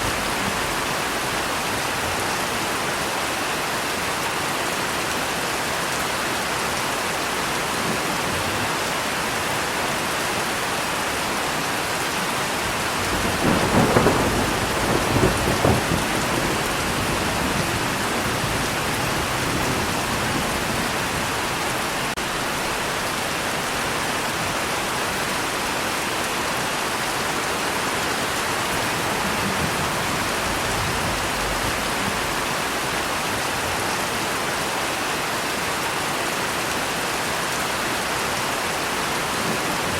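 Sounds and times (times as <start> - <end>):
rain falling: 0.0 - 39.9
thunder rolling: 12.7 - 21.6, 28.6 - 32.9.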